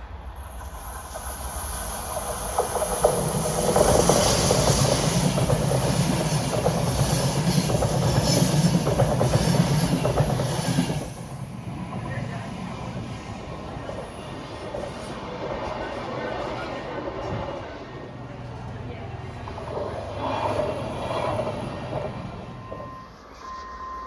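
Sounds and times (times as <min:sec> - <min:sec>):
train passing: 0:00.0 - 0:24.0
wheels clattering on track: 0:00.3 - 0:12.4, 0:18.4 - 0:23.0.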